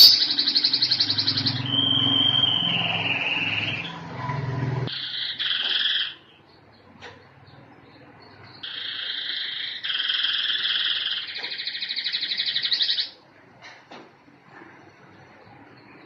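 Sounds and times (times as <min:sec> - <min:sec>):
faint bird chirps: 0:00.0 - 0:04.0
canary singing with fast trill: 0:00.0 - 0:04.1, 0:04.8 - 0:13.2.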